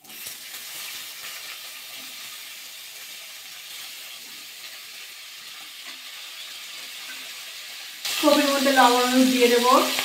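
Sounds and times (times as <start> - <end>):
cauliflower sizzling in oil: 0.0 - 10.0.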